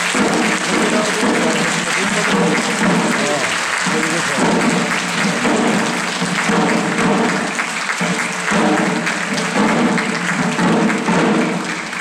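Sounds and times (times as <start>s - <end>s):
audience applause: 0.0s - 12.0s.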